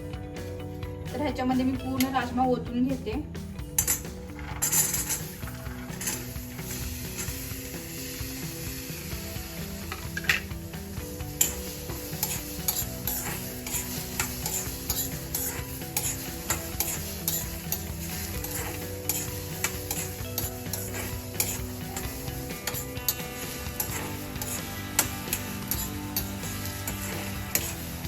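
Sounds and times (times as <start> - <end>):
spatula scraping pan: 3.8 - 7.8, 11.2 - 28.0.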